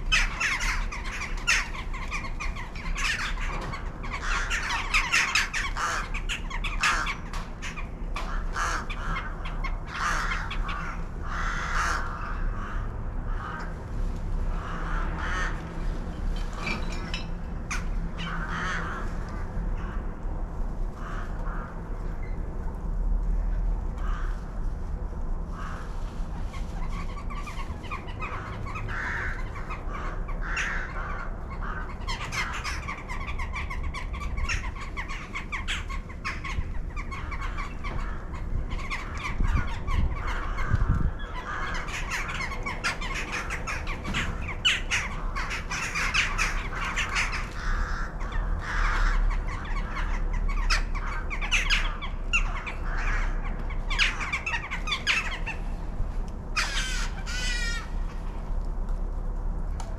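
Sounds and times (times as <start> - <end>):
flock of birds calling: 0.0 - 13.7, 14.4 - 20.2, 25.5 - 55.9, 56.5 - 58.4
low steady rumble: 0.0 - 59.9.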